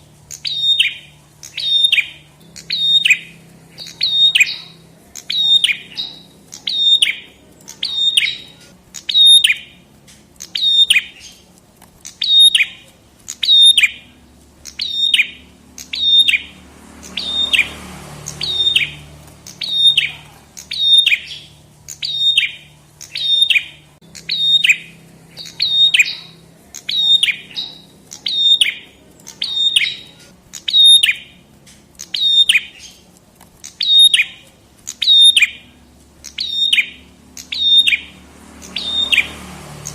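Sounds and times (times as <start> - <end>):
songbird high descending notes: 0.3 - 9.8, 12.2 - 31.4, 33.8 - 39.9.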